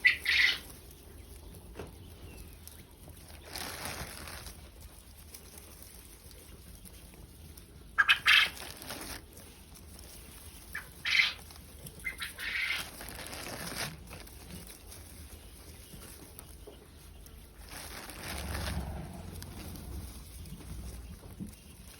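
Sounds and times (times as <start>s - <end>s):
quail calling: 0.0s - 0.7s, 8.0s - 8.6s, 10.7s - 11.4s, 12.0s - 12.9s.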